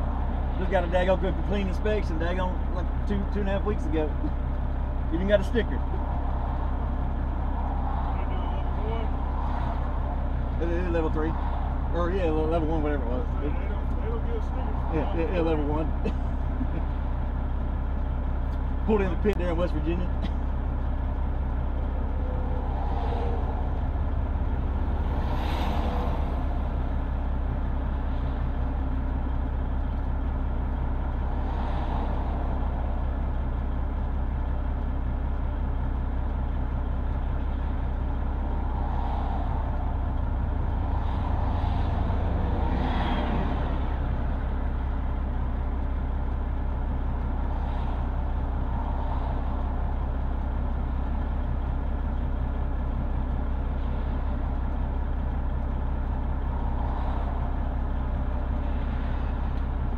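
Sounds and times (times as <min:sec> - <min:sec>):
truck diesel engine idling: 0:00.0 - 0:59.9
vehicles passing: 0:00.0 - 0:59.9.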